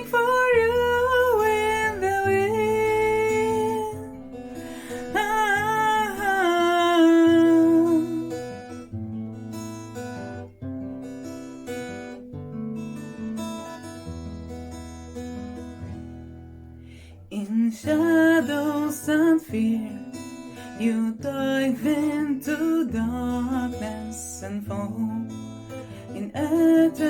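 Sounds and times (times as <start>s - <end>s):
woman singing: 0.0s - 8.8s, 17.3s - 27.0s
acoustic guitar: 0.0s - 27.0s.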